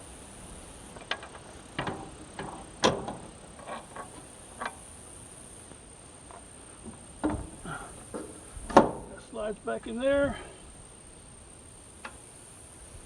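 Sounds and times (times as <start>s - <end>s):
metal parts clicking and clanking: 1.0s - 4.8s.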